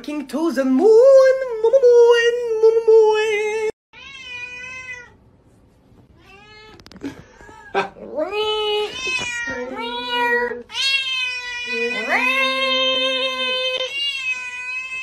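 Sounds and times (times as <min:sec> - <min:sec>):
cat meowing: 0:04.0 - 0:05.2, 0:06.2 - 0:06.9, 0:08.8 - 0:15.0.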